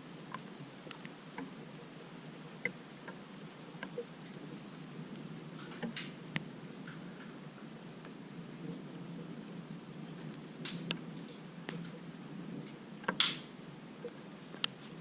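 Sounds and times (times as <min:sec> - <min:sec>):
light rain falling: 0:00.0 - 0:15.0
drops ticking near microphone: 0:03.8 - 0:04.1, 0:13.0 - 0:14.8.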